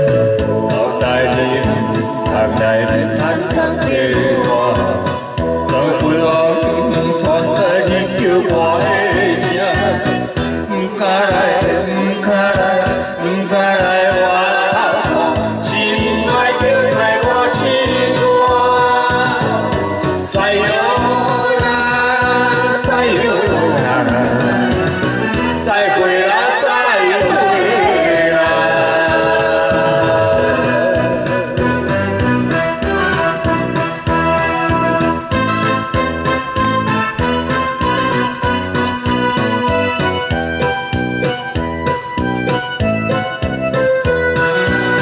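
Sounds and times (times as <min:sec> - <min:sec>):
group singing along: 0:00.0 - 0:34.8
karaoke backing track: 0:00.0 - 0:45.0.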